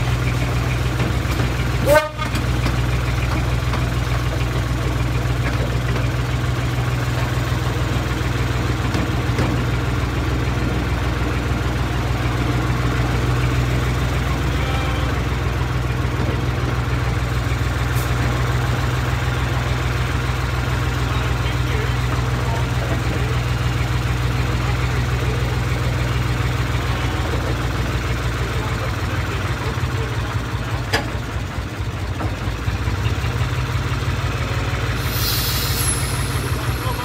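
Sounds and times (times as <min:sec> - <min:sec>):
low engine drone: 0:00.0 - 0:37.0
miniature train rolling on track: 0:18.3 - 0:37.0.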